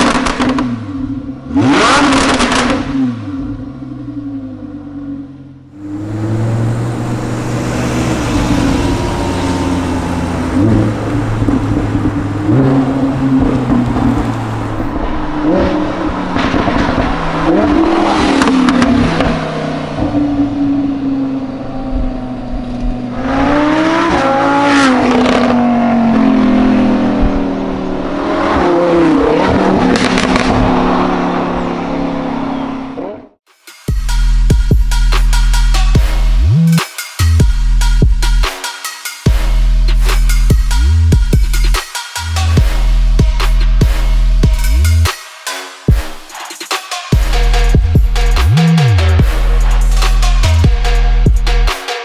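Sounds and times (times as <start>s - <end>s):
sports car engine running: 3.4s - 15.1s
exhaust crackles: 5.8s - 15.1s.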